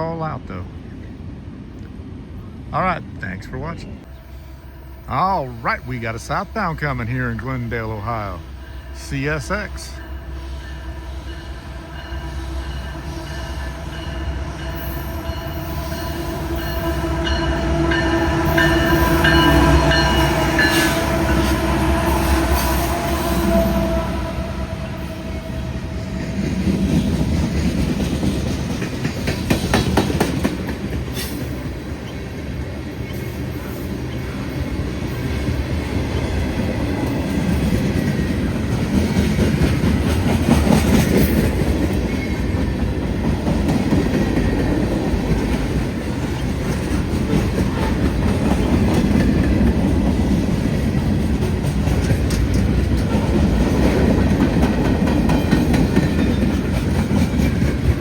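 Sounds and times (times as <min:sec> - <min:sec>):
freight train rumbling past: 0:00.0 - 0:58.0
wheels clacking over rail joints: 0:26.2 - 0:58.0.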